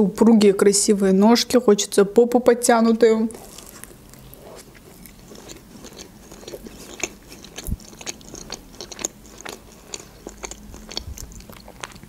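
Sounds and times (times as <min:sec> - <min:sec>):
chewing with mouth clicks and smacks: 0:03.4 - 0:12.0.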